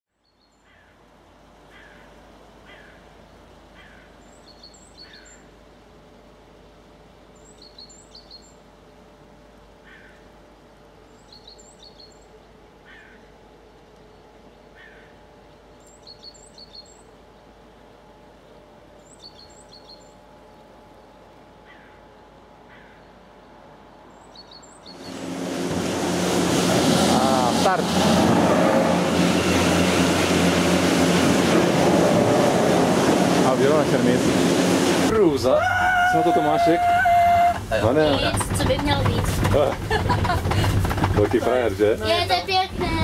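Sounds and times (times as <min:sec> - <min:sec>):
faint steady hum: 0:00.3 - 0:26.3
birds chirping: 0:19.0 - 0:20.2, 0:24.0 - 0:28.0
low falling bird calls: 0:24.1 - 0:27.0.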